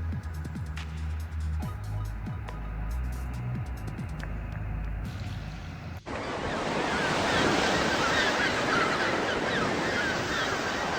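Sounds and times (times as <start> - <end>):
electronic music with deep bass: 0.0 - 6.0
wind: 0.0 - 10.9
waves: 5.2 - 10.9.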